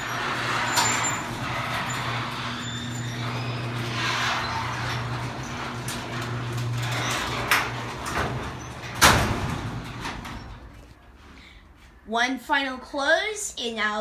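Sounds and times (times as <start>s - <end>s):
garage door opener motor hum: 0.0s - 10.9s
chain and door rattling: 0.1s - 10.8s.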